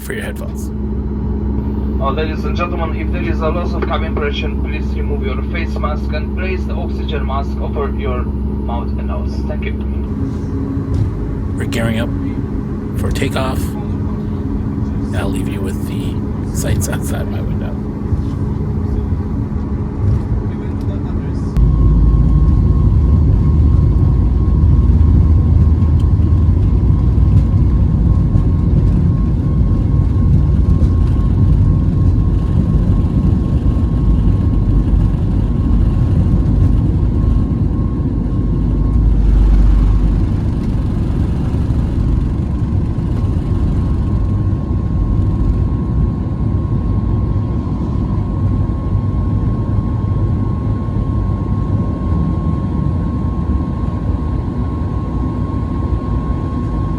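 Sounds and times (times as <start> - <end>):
aircraft engine rumble: 0.0 - 56.9
thin steady hum: 10.0 - 20.0.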